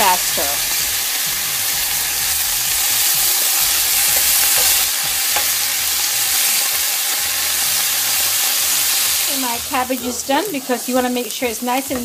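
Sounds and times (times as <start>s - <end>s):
cabbage sizzling in hot oil: 0.0s - 12.0s
utensil knocking on pan: 4.0s - 5.6s.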